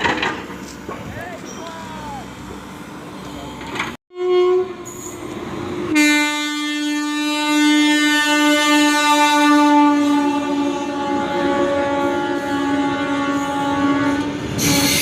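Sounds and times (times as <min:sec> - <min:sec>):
train horn: 0:04.1 - 0:05.2, 0:05.9 - 0:15.0.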